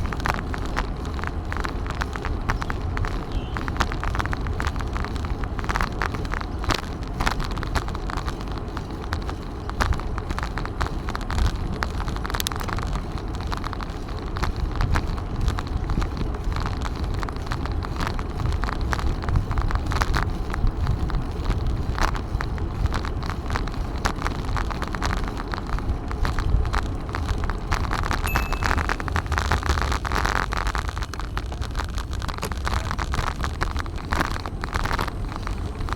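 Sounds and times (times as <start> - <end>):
bicycle clicks and crackles: 0.0 - 35.9
wind buffeting microphone: 0.0 - 35.9.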